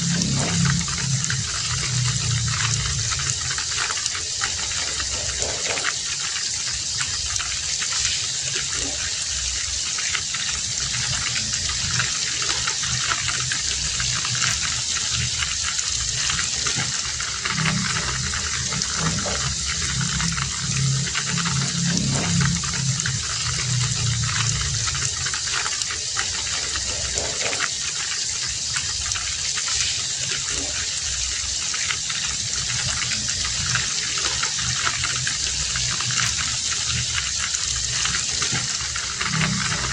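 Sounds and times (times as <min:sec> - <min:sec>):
low rumble: 0:00.0 - 0:03.8, 0:14.3 - 0:25.4
heavy rain falling: 0:00.0 - 0:39.9.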